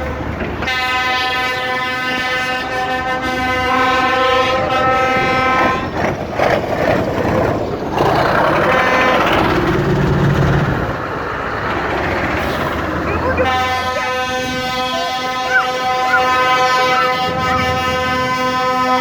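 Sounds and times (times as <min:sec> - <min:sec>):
passing vehicles rumbling: 0:00.0 - 0:19.0
vehicle horn toot: 0:13.1 - 0:18.8.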